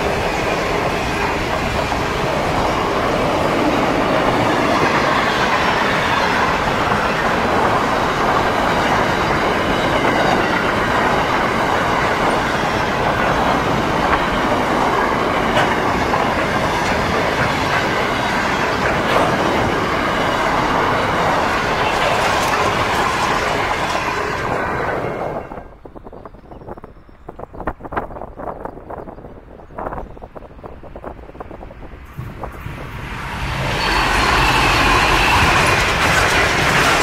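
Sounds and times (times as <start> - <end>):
wheels clicking over rail joints: 0.0 - 24.6, 33.5 - 37.0
freight train wagons rumbling: 0.0 - 37.0.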